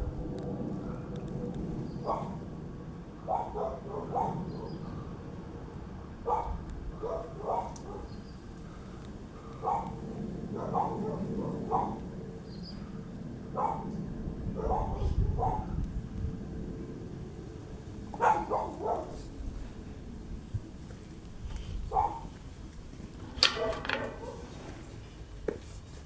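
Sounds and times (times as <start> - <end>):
dog barking: 2.0 - 2.4, 3.2 - 5.0, 5.6 - 8.2, 9.5 - 12.0, 13.6 - 14.0, 14.6 - 15.8, 18.2 - 19.3, 21.9 - 22.3.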